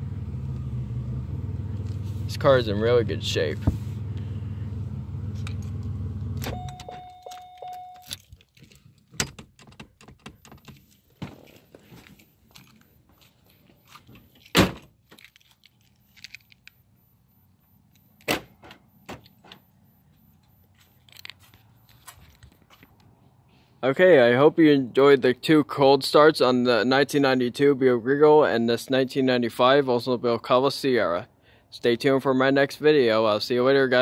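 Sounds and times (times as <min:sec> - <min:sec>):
car engine idling: 0:00.0 - 0:07.1
electronic warning chime: 0:06.4 - 0:08.1, 0:16.0 - 0:22.0
keys jangling: 0:06.7 - 0:11.0, 0:12.5 - 0:16.8, 0:20.4 - 0:22.9
sharp thunks: 0:14.5 - 0:14.9, 0:18.2 - 0:19.6.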